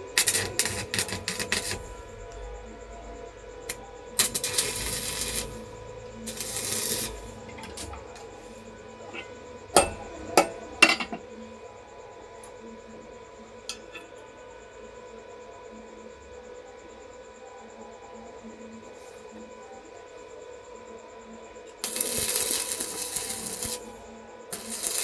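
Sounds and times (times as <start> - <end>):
faint steady hum: 0.0 - 25.0
rasping scrapes on metal: 24.6 - 25.0.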